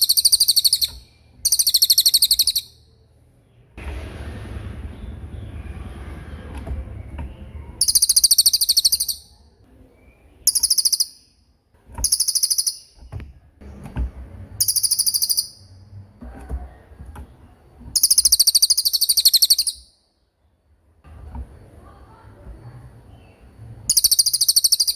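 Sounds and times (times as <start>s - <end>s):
songbird trilling: 0.0s - 2.9s, 7.8s - 9.4s, 10.4s - 11.4s, 12.0s - 13.1s, 14.6s - 15.8s, 18.0s - 20.0s, 23.9s - 24.9s.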